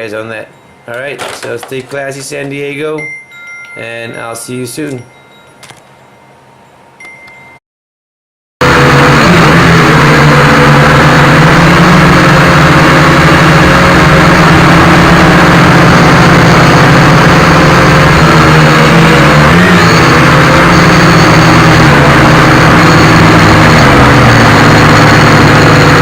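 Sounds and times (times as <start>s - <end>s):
quadcopter propellers buzzing: 8.6s - 26.0s.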